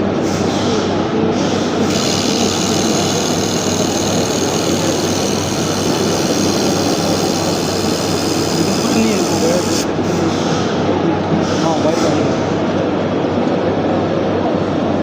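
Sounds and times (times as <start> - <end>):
welding machine running: 0.2 - 10.2.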